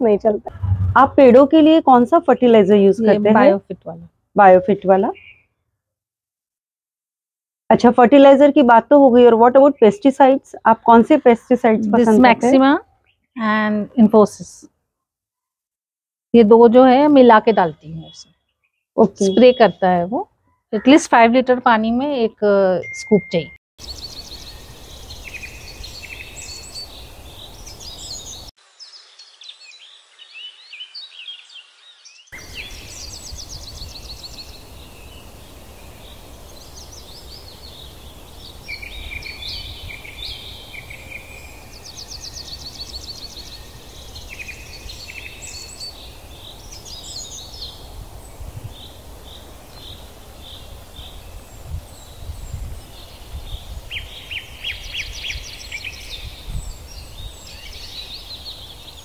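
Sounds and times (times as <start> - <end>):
steady low rumble: 0.5 - 1.6
small birds chirping and trilling: 4.4 - 5.6, 16.4 - 22.3, 23.8 - 59.0.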